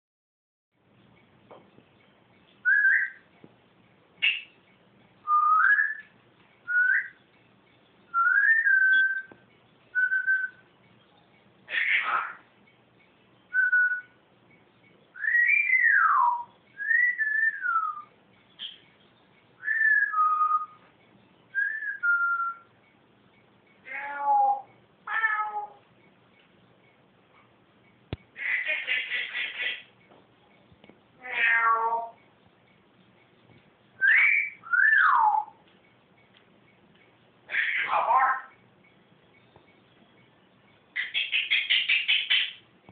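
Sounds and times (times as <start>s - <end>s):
pet bird whistling: 2.6s - 3.3s, 4.2s - 4.6s, 5.2s - 7.2s, 8.1s - 10.7s, 13.5s - 14.2s, 15.1s - 18.8s, 19.6s - 20.8s, 21.5s - 22.8s, 28.3s - 29.9s, 34.0s - 35.6s, 37.5s - 38.5s, 41.0s - 42.6s.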